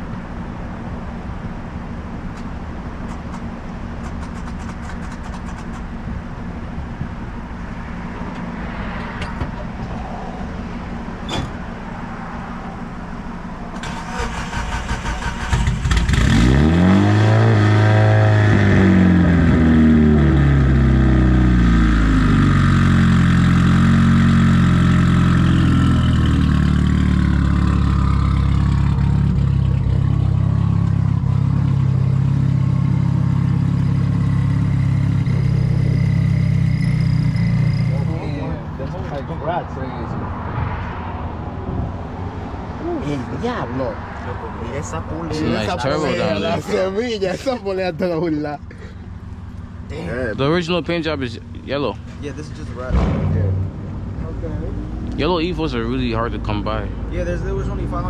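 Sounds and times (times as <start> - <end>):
low rumble of idling cars: 0.0 - 8.6, 9.4 - 16.3, 24.7 - 40.0, 42.8 - 58.0
car engine revving and idling: 0.0 - 58.0
car starter cranking: 13.7 - 16.2.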